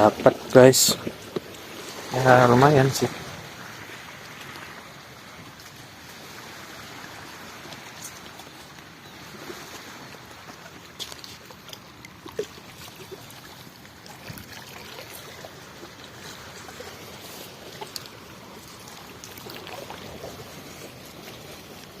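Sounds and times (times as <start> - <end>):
shallow water trickling and sloshing: 0.0 - 22.0
small splashes and clicks: 0.4 - 2.0, 7.7 - 22.0.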